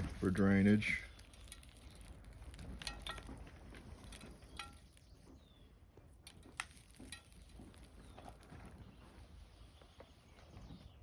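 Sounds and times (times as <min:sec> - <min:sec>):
gritty soil clicking and clinking: 0:00.0 - 0:10.4.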